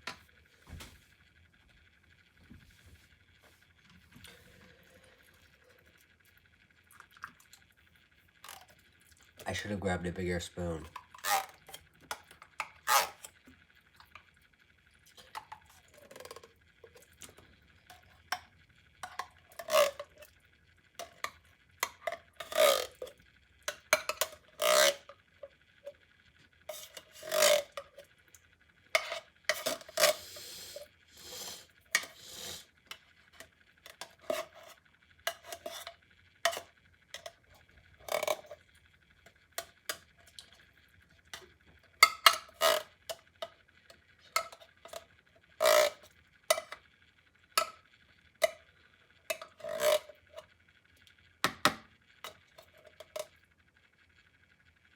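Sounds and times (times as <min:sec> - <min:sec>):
spoon scraping a tin can: 0:10.8 - 0:13.3, 0:19.0 - 0:20.2, 0:21.0 - 0:23.1, 0:23.7 - 0:25.1, 0:26.7 - 0:28.0, 0:28.9 - 0:37.4, 0:38.0 - 0:38.6, 0:42.0 - 0:43.5, 0:44.2 - 0:45.0, 0:45.6 - 0:46.8, 0:49.3 - 0:50.4.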